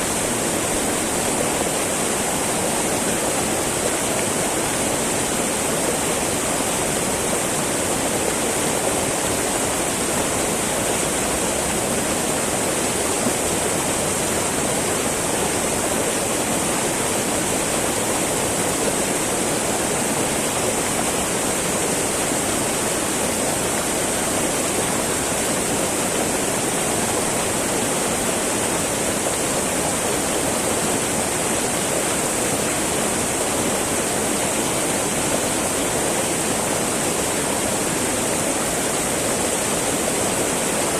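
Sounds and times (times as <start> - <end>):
river babbling over rocks: 0.0 - 40.9.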